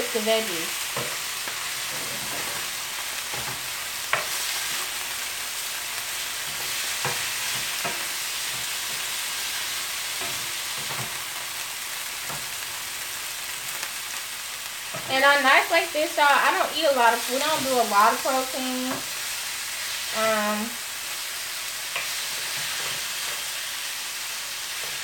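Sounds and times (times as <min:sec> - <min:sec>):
chicken sizzling in a skillet: 0:00.0 - 0:25.0
wooden spatula scraping a pan: 0:00.9 - 0:04.9.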